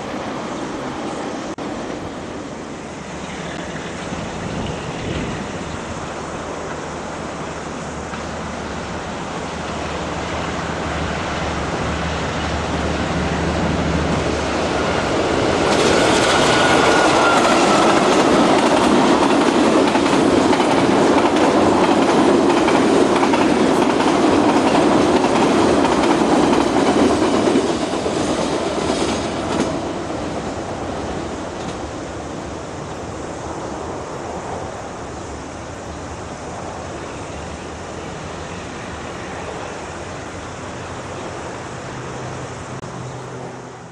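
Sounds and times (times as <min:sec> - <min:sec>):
locomotive hum: 0:00.0 - 0:43.9
train wheels clattering on rails: 0:11.8 - 0:32.0
wheel squeal: 0:15.9 - 0:18.4.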